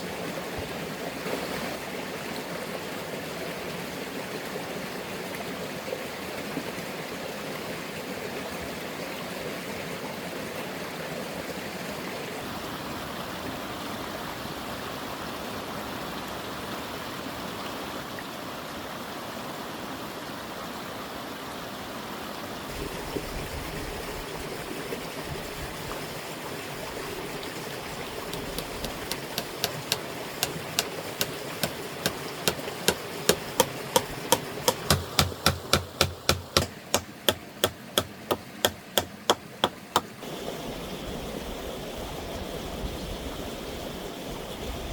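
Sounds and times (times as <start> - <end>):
flowing stream water: 0.0 - 44.9
sharp evenly spaced knocks: 28.3 - 40.2.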